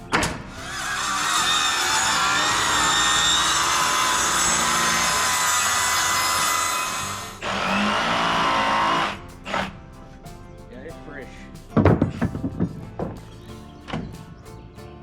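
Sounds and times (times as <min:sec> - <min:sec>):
power saw cutting wood: 0:00.5 - 0:09.7.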